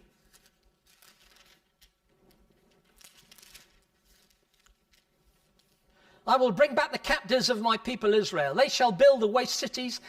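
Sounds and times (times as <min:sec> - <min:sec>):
faint rustling of paper pages: 0:00.0 - 0:06.0.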